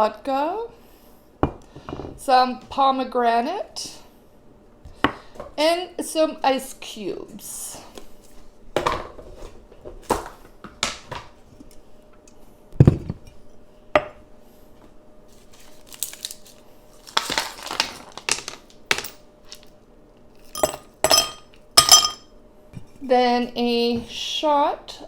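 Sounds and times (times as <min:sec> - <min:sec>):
dishes and glassware clattering: 0:20.5 - 0:22.3.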